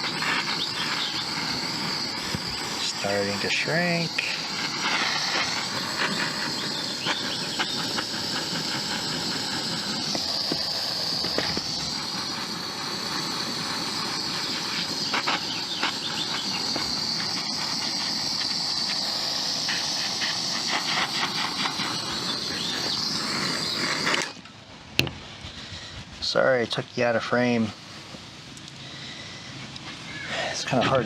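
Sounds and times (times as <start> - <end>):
torch flame hissing: 0.0 - 31.0.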